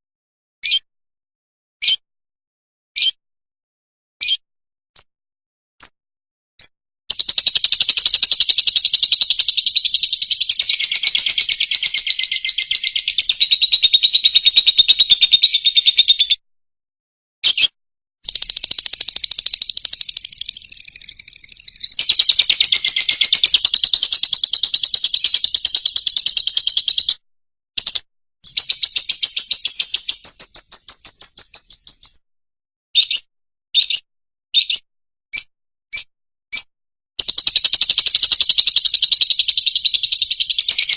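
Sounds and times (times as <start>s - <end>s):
lovebird chirping: 7.1s - 16.4s, 18.3s - 27.2s, 27.8s - 32.2s, 37.2s - 40.9s.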